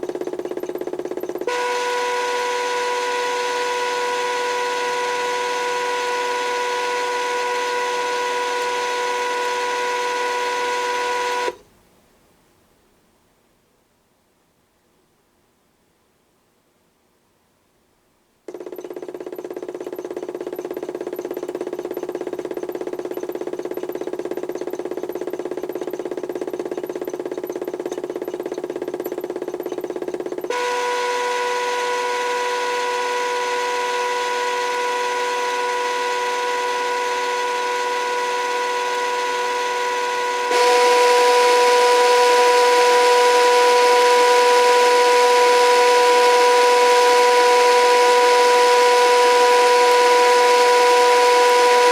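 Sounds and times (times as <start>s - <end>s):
electric motor whining: 1.5s - 11.6s, 30.5s - 51.9s.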